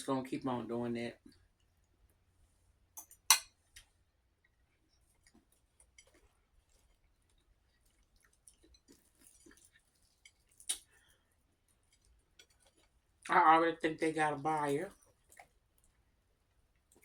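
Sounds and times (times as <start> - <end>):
chewing and mouth sounds: 3.7 - 13.3, 14.9 - 17.0.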